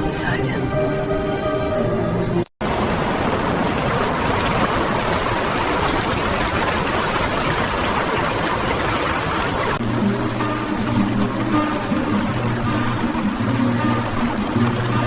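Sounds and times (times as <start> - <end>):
background music: 0.0 - 2.5, 9.8 - 15.0
river water rushing: 2.6 - 15.0.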